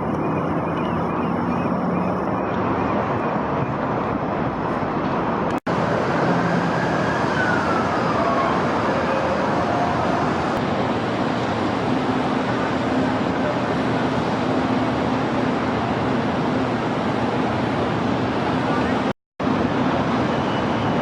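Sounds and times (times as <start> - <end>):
faint siren wailing: 0.0 - 3.8, 6.2 - 10.6
city traffic noise: 0.0 - 21.0.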